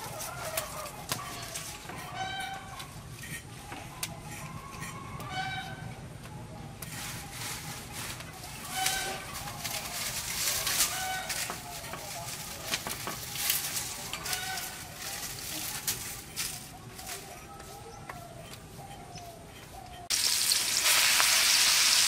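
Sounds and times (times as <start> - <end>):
farm animal calling: 4.3 - 6.0, 8.6 - 12.6, 13.8 - 15.2.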